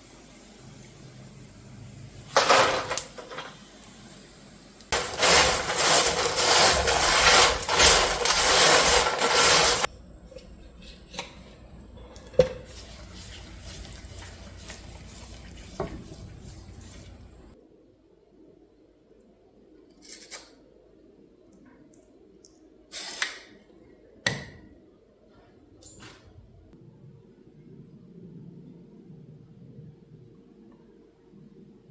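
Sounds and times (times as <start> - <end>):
dishes and utensils clattering: 5.0 - 17.6
dishes scraping: 5.0 - 17.6.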